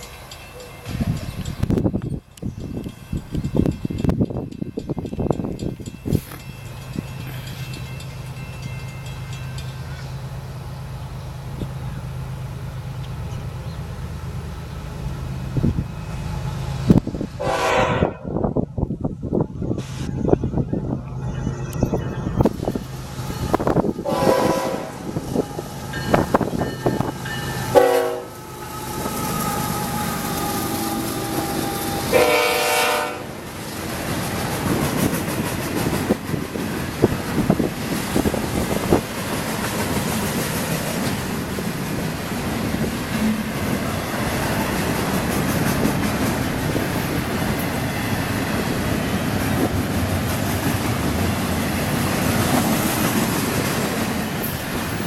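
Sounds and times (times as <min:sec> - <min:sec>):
train rumbling past: 0:00.0 - 0:55.0
train horn blasts: 0:16.1 - 0:18.4, 0:23.0 - 0:33.4.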